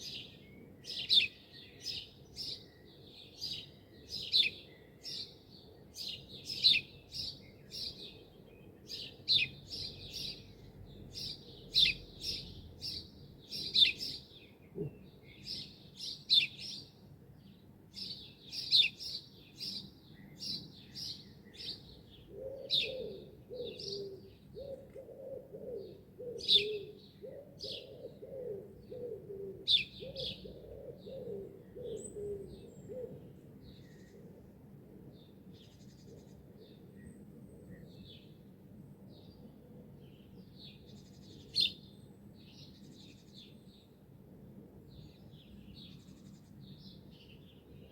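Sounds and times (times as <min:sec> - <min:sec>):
small birds chirping: 0:00.0 - 0:25.1, 0:29.6 - 0:34.2, 0:39.2 - 0:44.0
pigeon cooing: 0:22.3 - 0:33.3.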